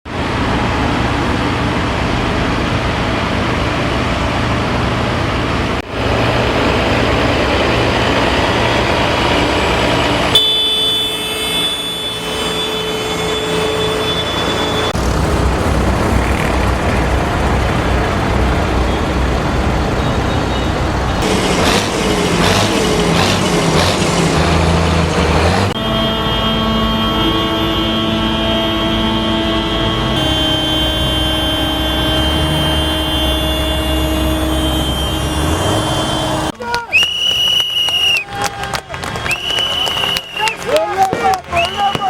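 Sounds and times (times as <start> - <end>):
tractor diesel engines: 0.0 - 42.0
steady high-pitched tone: 25.7 - 36.5.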